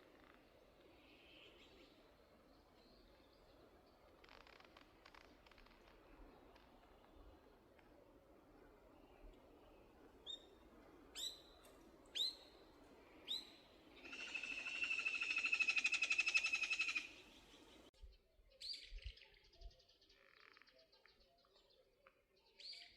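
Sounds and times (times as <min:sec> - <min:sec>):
wild birds calling: 0:12.1 - 0:17.9.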